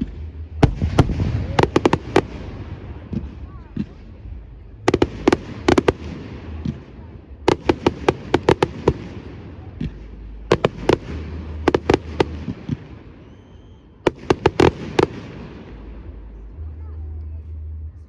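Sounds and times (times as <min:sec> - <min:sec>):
fireworks bangs and crackles: 0:00.0 - 0:16.4
low rumble: 0:00.0 - 0:18.0
faint high whistle: 0:13.2 - 0:14.0.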